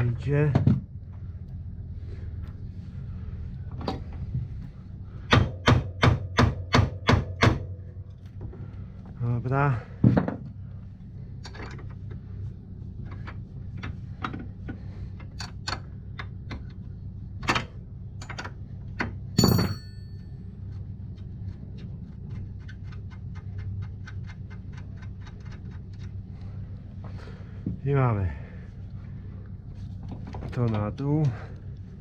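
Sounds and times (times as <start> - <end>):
steady low hum: 0.0 - 32.0
metal tool clicks and knocks: 19.4 - 20.0
ringing metal clank: 19.4 - 20.3.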